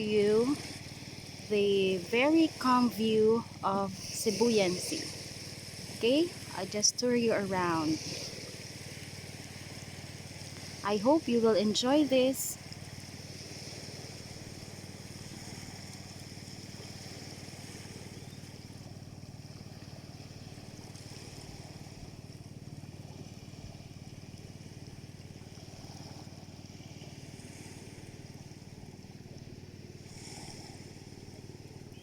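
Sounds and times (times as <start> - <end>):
constant hiss: 0.0 - 19.8
small engine running: 0.0 - 32.0.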